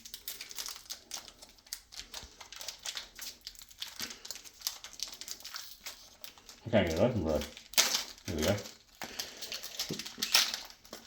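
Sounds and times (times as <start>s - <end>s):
card pack packaging crinkling: 0.0s - 11.0s.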